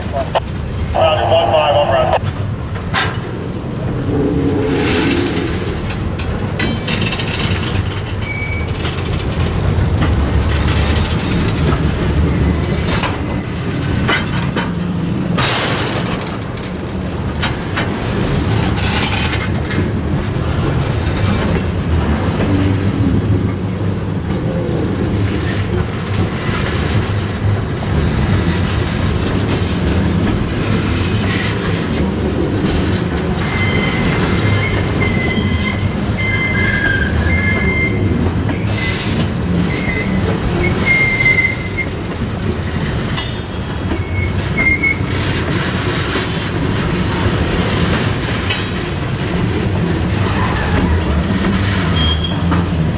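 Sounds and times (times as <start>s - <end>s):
freight train rumbling: 0.0s - 52.9s
wheel flanges squealing: 4.0s - 9.2s, 33.4s - 42.0s, 43.9s - 45.2s, 50.2s - 52.7s
wheels knocking and clicking: 5.8s - 52.9s.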